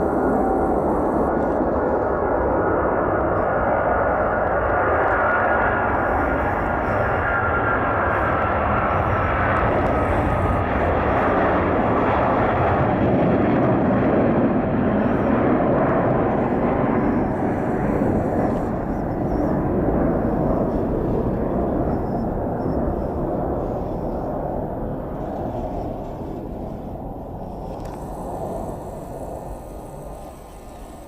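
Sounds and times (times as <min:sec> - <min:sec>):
jet airliner taking off: 0:00.0 - 0:31.0.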